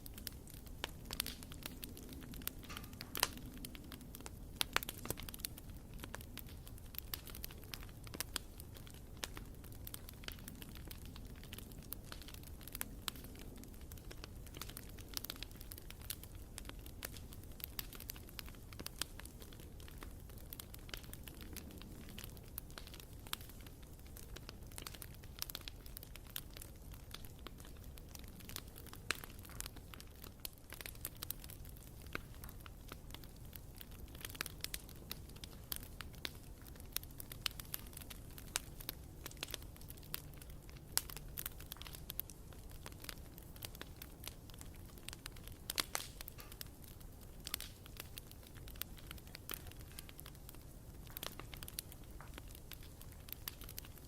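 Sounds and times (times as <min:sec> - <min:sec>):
burning wood crackling and popping: 0:00.0 - 0:54.0
low rumble of flames: 0:00.0 - 0:54.0.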